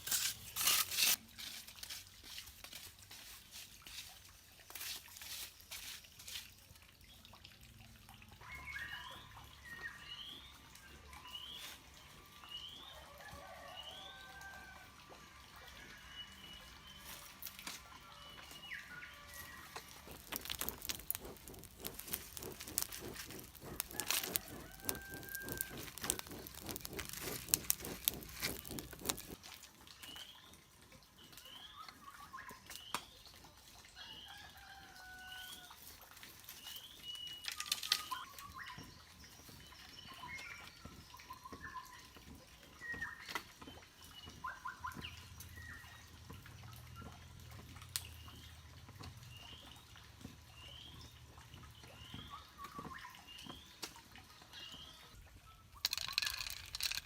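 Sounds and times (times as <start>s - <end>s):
whistled bird calls: 8.4s - 10.5s, 44.1s - 46.0s
sharp clicks and taps: 19.7s - 29.4s.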